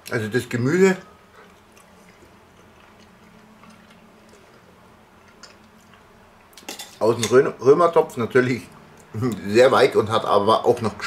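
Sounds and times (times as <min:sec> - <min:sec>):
faint chewing: 0:01.0 - 0:06.7.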